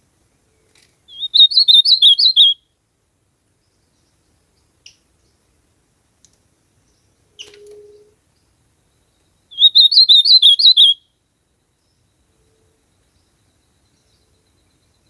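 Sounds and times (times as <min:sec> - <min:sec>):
bird warbling song: 0:01.1 - 0:02.6, 0:09.5 - 0:11.0
faint bird call: 0:09.5 - 0:11.1
faint low hum: 0:11.0 - 0:15.0.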